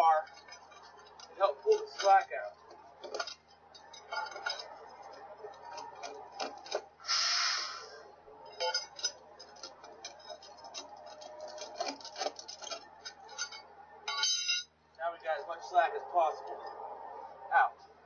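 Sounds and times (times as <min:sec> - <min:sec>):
steel tire chain clinking: 0:00.0 - 0:14.8
metal scrape: 0:00.1 - 0:14.6.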